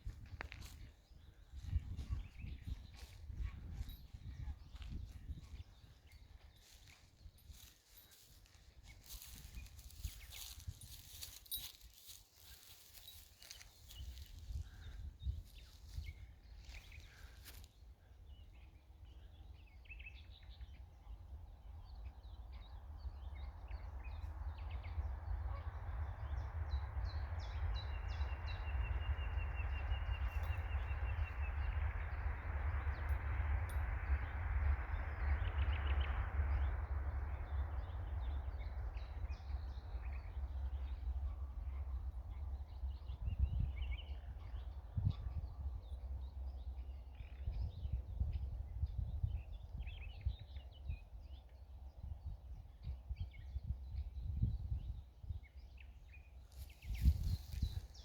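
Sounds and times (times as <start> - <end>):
steady low rumble: 0.0 - 11.3, 20.7 - 54.8
bird chirps: 55.7 - 58.0.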